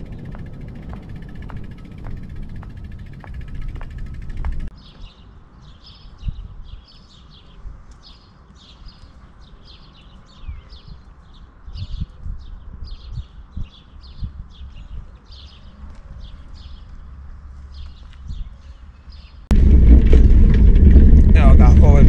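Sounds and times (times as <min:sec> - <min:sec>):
low rumble: 0:00.0 - 0:04.7, 0:19.5 - 0:22.0
small birds chirping: 0:00.1 - 0:19.5.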